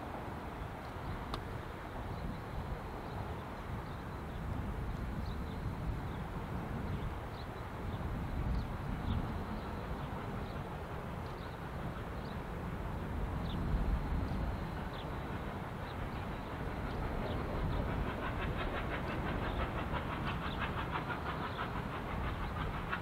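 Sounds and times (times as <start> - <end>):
train rumbling past: 0.0 - 23.0.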